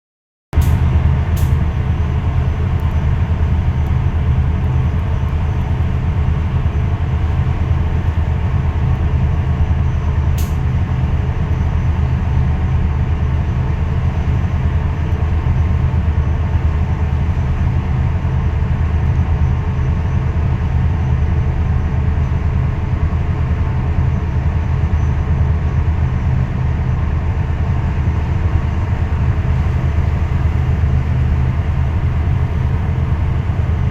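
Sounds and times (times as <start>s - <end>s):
engine droning: 0.6s - 33.9s.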